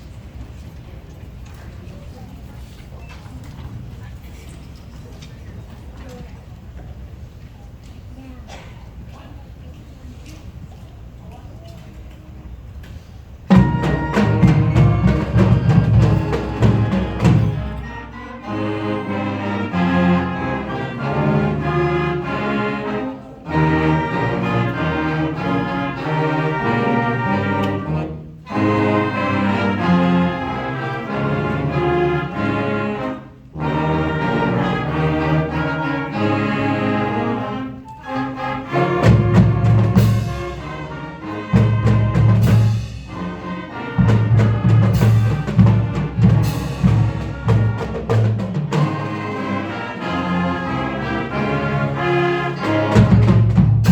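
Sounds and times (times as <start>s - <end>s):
drum and percussion strokes: 13.5s - 17.9s, 38.9s - 43.4s, 44.0s - 49.3s
brass chords: 13.5s - 53.9s.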